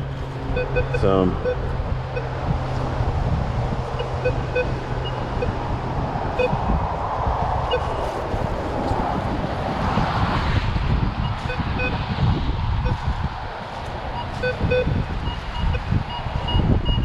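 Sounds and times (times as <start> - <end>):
wind buffeting microphone: 0.0 - 17.0
metal detector beeps: 0.6 - 2.3, 4.0 - 5.6, 6.4 - 6.6, 7.7 - 8.1, 11.4 - 12.0, 14.2 - 17.0.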